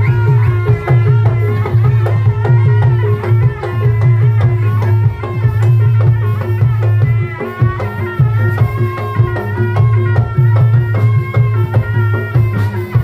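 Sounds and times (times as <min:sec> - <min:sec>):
drums in quick rhythm: 0:00.0 - 0:13.0.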